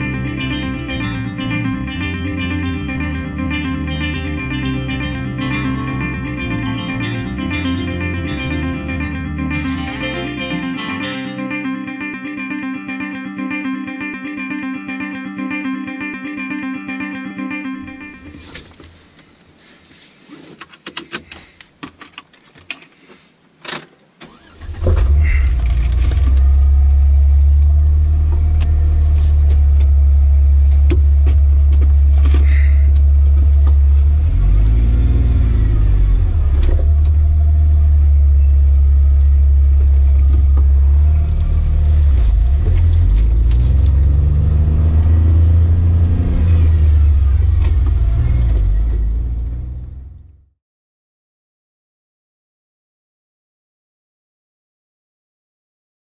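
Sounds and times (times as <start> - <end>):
vehicle engine rumbling: 24.6 - 50.5.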